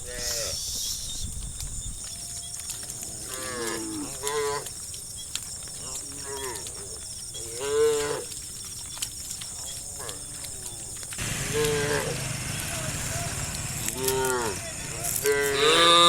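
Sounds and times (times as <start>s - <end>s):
cows mooing: 2.4s - 4.8s, 5.8s - 8.4s, 9.7s - 16.0s.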